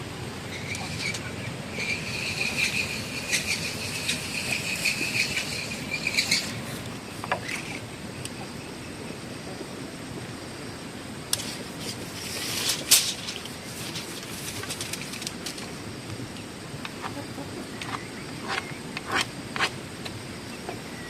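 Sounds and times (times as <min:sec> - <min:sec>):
insect trilling: 0:00.3 - 0:09.2.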